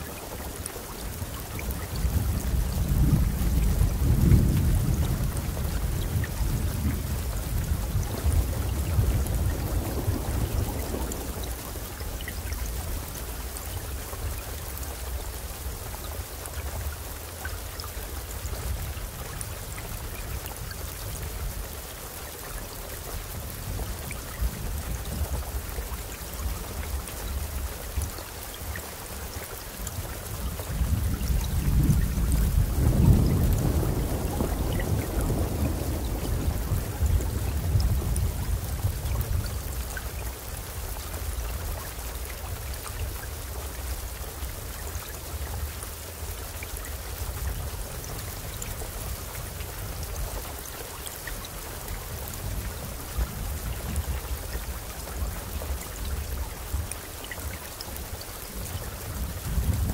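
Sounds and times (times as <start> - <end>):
steady rainfall: 0.0 - 59.9
low thunder rumble: 1.2 - 14.3, 29.9 - 44.2, 58.0 - 59.9.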